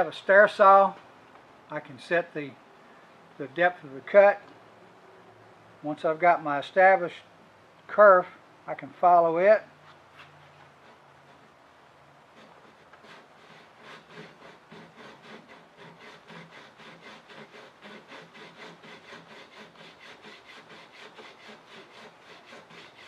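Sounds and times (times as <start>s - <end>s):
handsaw cutting wood: 12.3s - 23.0s.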